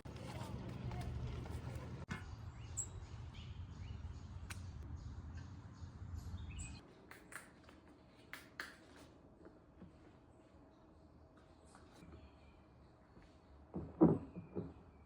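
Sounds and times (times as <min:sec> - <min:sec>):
small birds chirping: 0:01.6 - 0:07.0.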